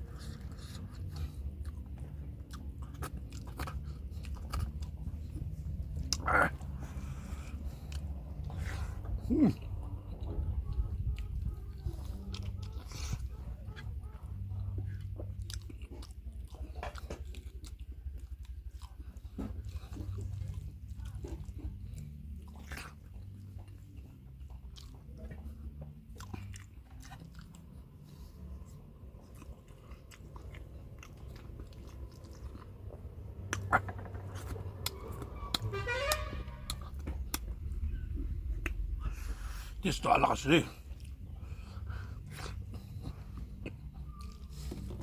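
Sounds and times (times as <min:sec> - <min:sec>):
chewing and biting meat: 0:00.0 - 0:45.0
wavering pitched squeak: 0:34.9 - 0:37.0.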